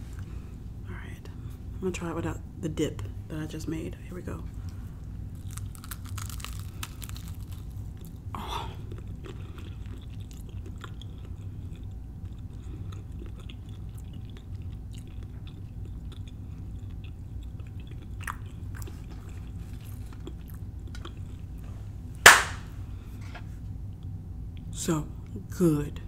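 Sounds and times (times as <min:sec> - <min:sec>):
chewing with crunches: 0:04.6 - 0:21.8
sharp hand clap: 0:22.2 - 0:22.7.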